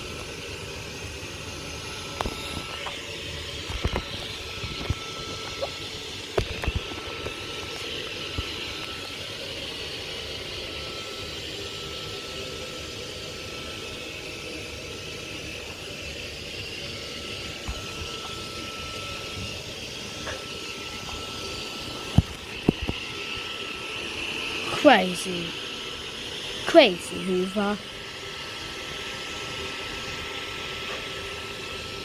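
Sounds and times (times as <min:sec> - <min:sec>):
vacuum cleaner running: 0:00.0 - 0:32.0.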